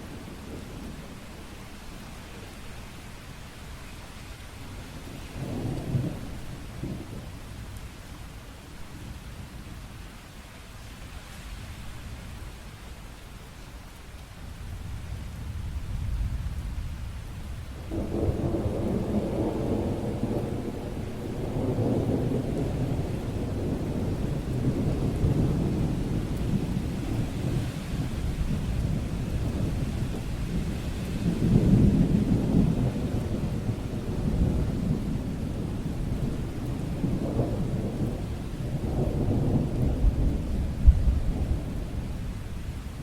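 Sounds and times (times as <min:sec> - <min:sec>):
steady rain: 0:00.0 - 0:43.0
rolling thunder: 0:05.0 - 0:07.4, 0:14.8 - 0:43.0.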